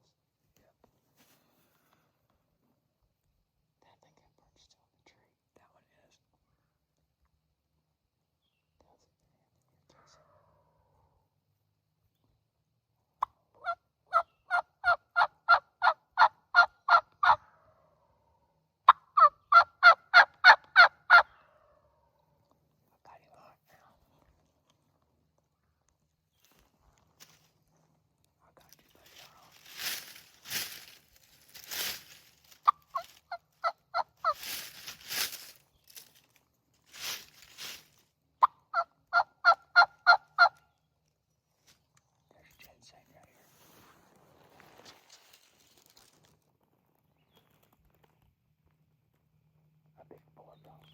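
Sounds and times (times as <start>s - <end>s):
turkey yelping: 13.6s - 17.6s, 18.9s - 21.4s, 32.6s - 34.7s, 38.4s - 40.6s
soft rustling: 26.3s - 33.2s, 34.2s - 38.1s, 42.9s - 48.3s.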